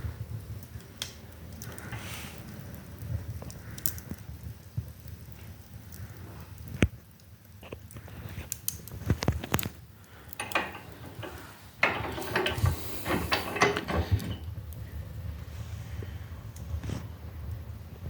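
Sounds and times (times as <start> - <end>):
fire rustling noise: 0.0 - 18.0
wood stove clicks and knocks: 10.3 - 14.6.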